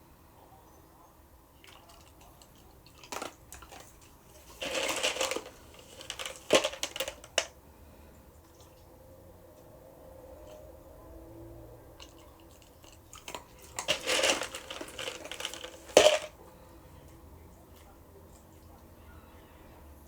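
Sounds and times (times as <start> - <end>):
crinkling and crunching: 1.6 - 7.5, 12.0 - 16.4.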